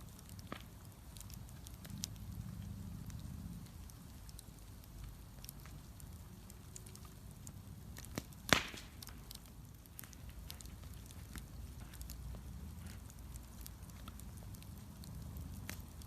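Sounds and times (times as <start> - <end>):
bonfire crackling: 0.0 - 16.0
low fire rumble: 0.0 - 16.0
loud pop: 8.5 - 9.0.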